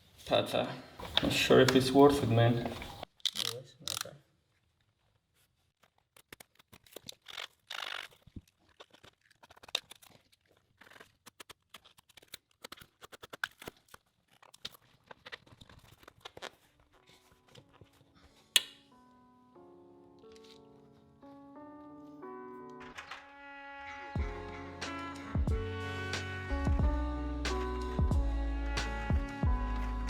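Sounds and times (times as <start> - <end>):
background music: 18.2 - 30.0.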